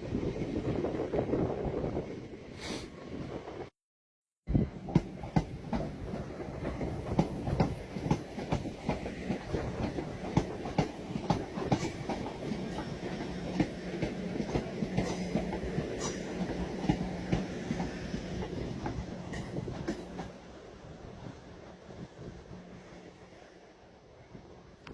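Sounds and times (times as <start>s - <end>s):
train wheels clacking over rail joints: 4.9s - 20.3s.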